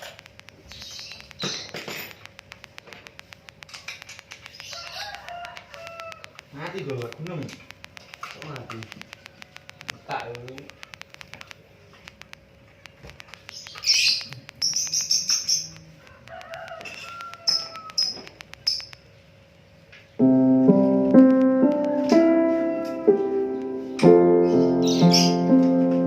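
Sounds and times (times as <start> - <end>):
small bird chirping: 0.0 - 20.2, 23.5 - 25.8
faint ticking: 0.0 - 26.0
piano music: 20.2 - 26.0.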